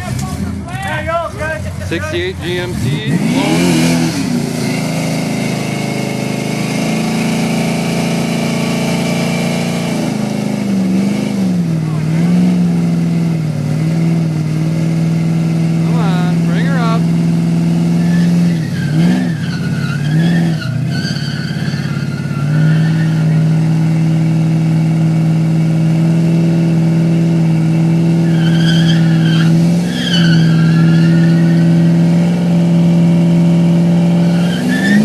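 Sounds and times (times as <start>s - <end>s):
engine revving high: 1.8s - 35.0s
tyres spinning and squealing: 17.8s - 23.9s, 28.1s - 32.3s, 33.7s - 35.0s.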